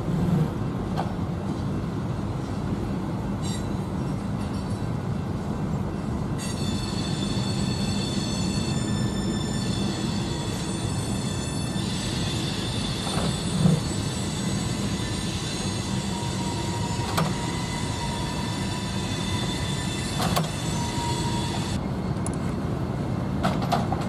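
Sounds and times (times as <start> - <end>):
freight train rumbling past: 0.0 - 24.0
high-pitched wheel squeal: 6.4 - 21.8.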